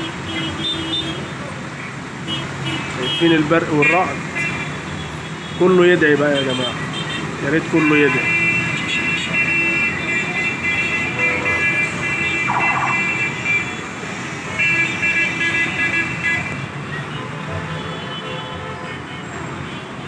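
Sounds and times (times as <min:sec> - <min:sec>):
street traffic: 0:00.0 - 0:20.0
car horns: 0:02.2 - 0:05.6, 0:06.3 - 0:20.0
warbling car alarm: 0:12.4 - 0:13.7.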